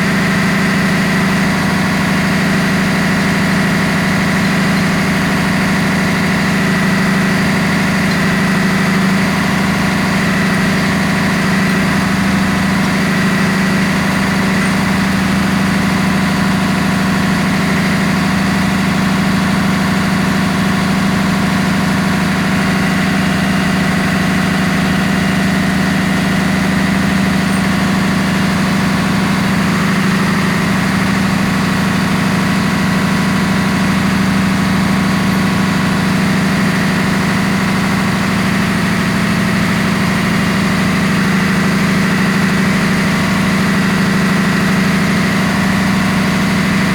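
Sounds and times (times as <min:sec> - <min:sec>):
engine-room machinery drone: 0:00.0 - 0:46.9.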